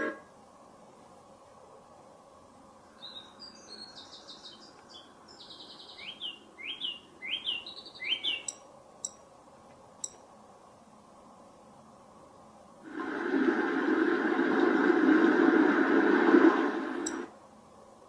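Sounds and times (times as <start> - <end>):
steady low hiss: 0.0 - 18.0
bird chirping and whistling: 3.0 - 8.6.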